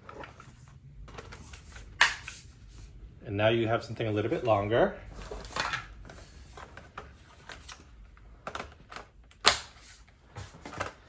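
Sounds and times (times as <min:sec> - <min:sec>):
plastic vacuum parts clicking: 0:05.4 - 0:11.0.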